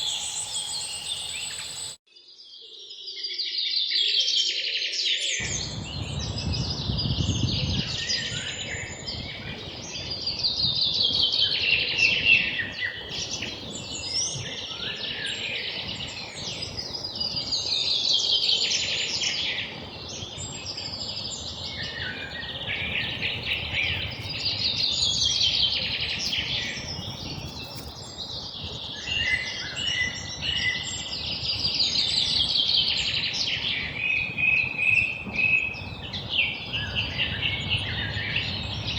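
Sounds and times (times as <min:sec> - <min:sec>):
songbird trill falling in pitch: 0:00.0 - 0:02.0.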